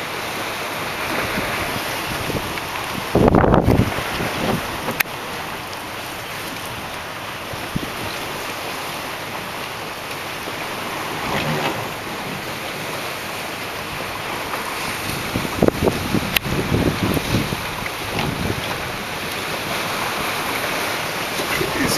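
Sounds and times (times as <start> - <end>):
water washing against dock: 0.0 - 21.9
wind buffeting microphone: 1.2 - 5.0, 6.7 - 8.2, 14.8 - 21.9.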